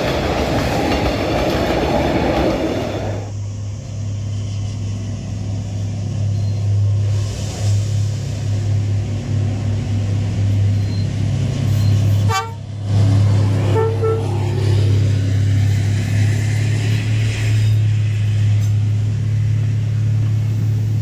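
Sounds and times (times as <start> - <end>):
diesel train engine drone: 0.0 - 21.0
train horn toots: 12.2 - 12.7, 13.6 - 14.4.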